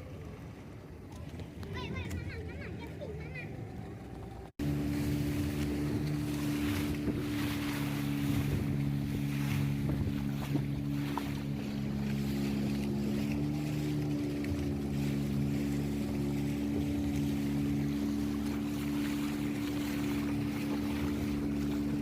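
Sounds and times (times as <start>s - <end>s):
motorboat engine running: 0.0s - 22.0s
water noise: 0.0s - 22.0s
wind on microphone: 4.6s - 22.0s.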